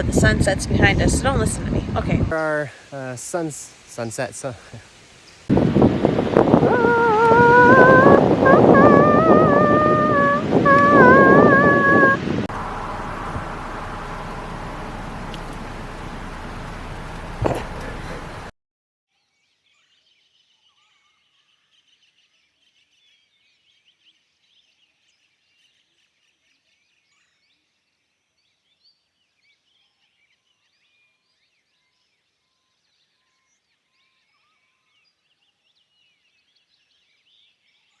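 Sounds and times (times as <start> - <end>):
wind buffeting microphone: 0.0 - 2.4, 5.5 - 18.5
faint songbirds chirping: 12.5 - 18.5, 19.3 - 38.0.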